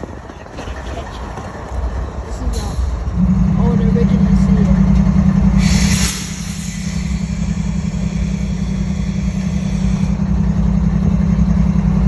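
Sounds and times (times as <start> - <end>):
engine idling: 0.0 - 12.0
short hiss of air: 5.6 - 9.9.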